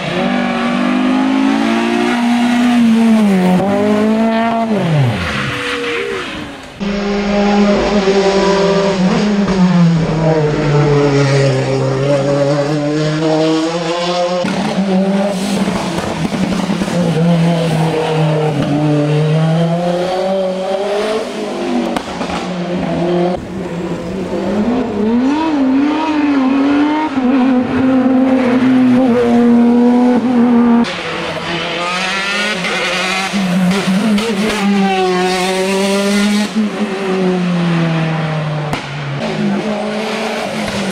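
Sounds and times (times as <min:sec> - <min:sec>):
race car engines accelerating: 0:00.0 - 0:40.9.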